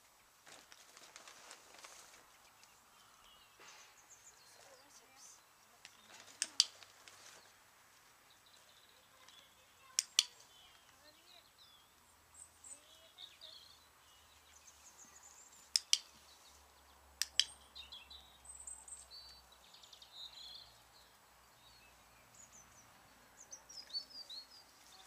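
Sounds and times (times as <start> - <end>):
small birds chirping: 0.0 - 25.0
sharp clicks: 5.8 - 7.2, 9.2 - 11.0, 15.7 - 16.2, 17.2 - 17.6.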